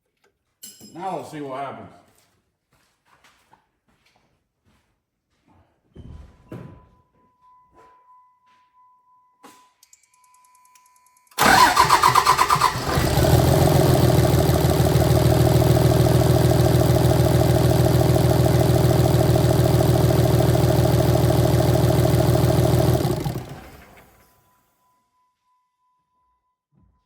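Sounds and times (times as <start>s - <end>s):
diesel engine idling: 11.4s - 24.1s
starter motor cranking: 11.4s - 24.2s.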